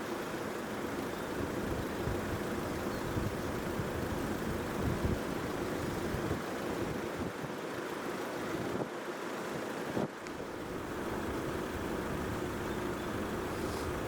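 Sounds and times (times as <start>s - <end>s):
wind buffeting microphone: 1.4s - 7.6s.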